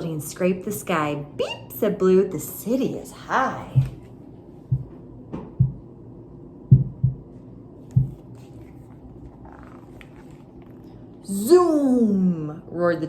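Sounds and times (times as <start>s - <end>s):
faint steady hum: 0.0s - 13.0s
soft low thumps: 3.6s - 4.0s, 4.6s - 6.0s, 6.6s - 7.3s, 7.9s - 8.3s.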